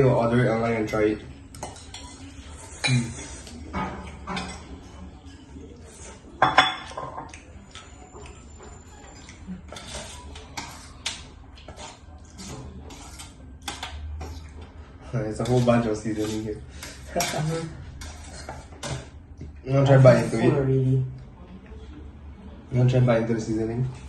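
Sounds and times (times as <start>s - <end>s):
utensils clinking against bowls: 1.5s - 4.8s, 6.4s - 14.6s, 15.3s - 19.2s.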